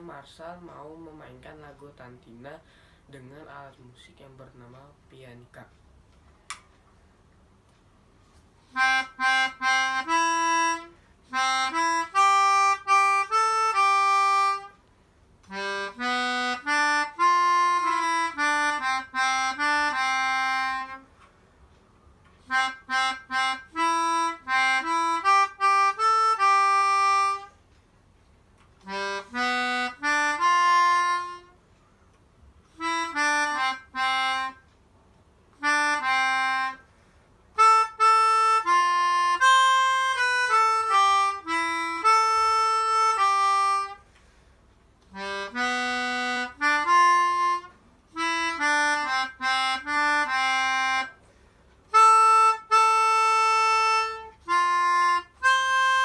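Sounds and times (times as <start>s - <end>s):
melodica playing a melody: 8.2s - 21.3s, 22.4s - 27.8s, 28.8s - 31.8s, 32.6s - 34.8s, 35.5s - 56.0s.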